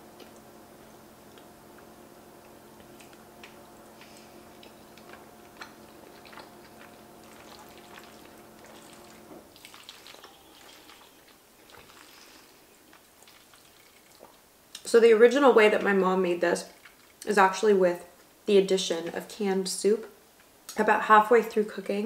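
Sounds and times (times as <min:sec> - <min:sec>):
person chewing wet food: 0:00.0 - 0:14.8, 0:16.7 - 0:17.3
steady background hum: 0:00.0 - 0:22.0.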